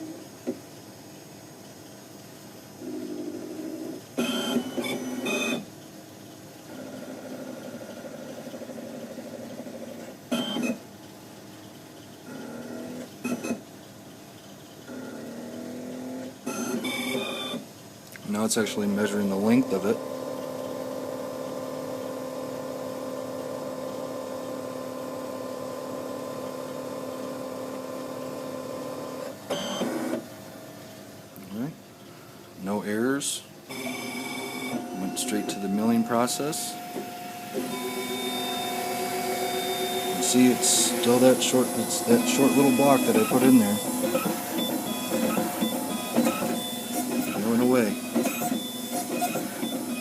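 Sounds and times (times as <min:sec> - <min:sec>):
steady mechanical hum: 0:00.0 - 0:50.0
motors whirring with high whine: 0:02.8 - 0:05.7, 0:06.6 - 0:10.9, 0:11.5 - 0:13.7, 0:14.4 - 0:30.3, 0:33.7 - 0:50.0
dental milling machine humming: 0:12.2 - 0:13.5, 0:33.7 - 0:50.0
brief loud machine sound: 0:33.7 - 0:50.0.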